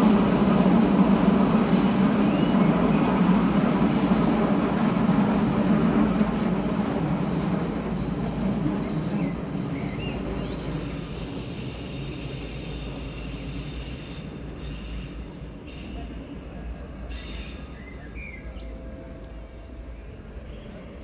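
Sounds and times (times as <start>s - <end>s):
electric train rumble: 0.0s - 21.0s
high-pitched wheel squeal: 10.3s - 15.0s.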